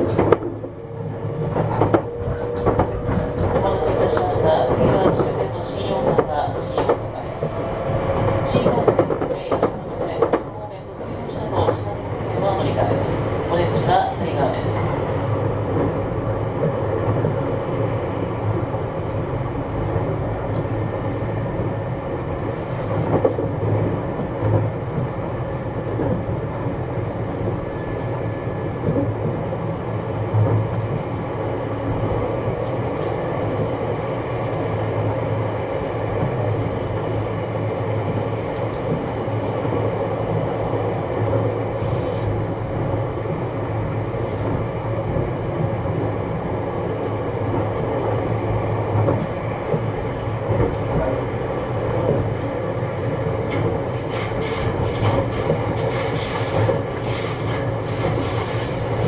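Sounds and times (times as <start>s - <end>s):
rail-joint clicks: 0.0s - 7.6s, 25.8s - 26.3s, 53.3s - 59.0s
train wheels and motors rumbling: 0.0s - 59.0s.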